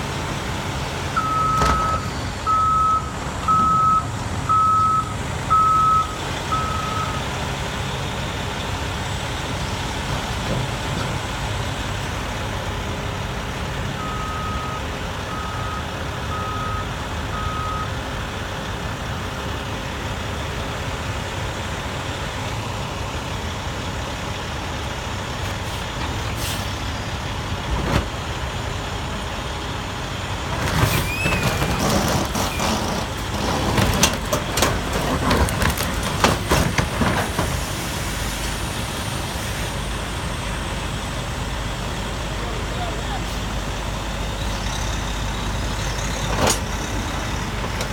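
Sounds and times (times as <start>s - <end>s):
bulldozer engine running: 0.0s - 47.9s
reversing alarm beeping: 1.2s - 7.3s, 13.9s - 18.0s
metal clanks and squeals: 30.5s - 37.7s, 44.4s - 47.9s.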